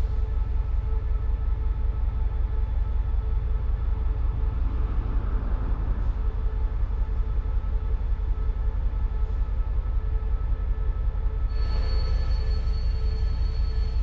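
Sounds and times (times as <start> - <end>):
high wheel squeal: 11.5 - 14.0.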